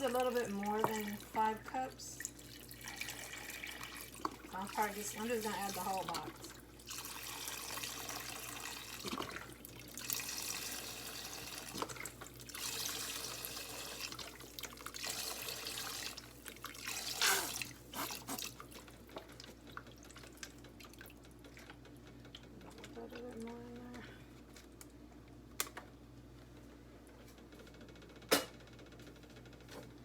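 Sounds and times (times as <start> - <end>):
broth pouring into a pot: 2.2 - 18.7.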